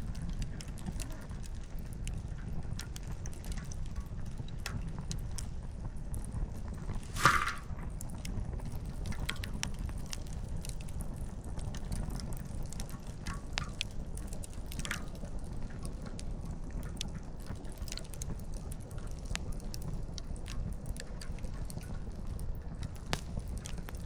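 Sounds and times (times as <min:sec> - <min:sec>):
campfire crackling and popping: 0:00.0 - 0:24.0
low fire rumble: 0:00.0 - 0:24.0.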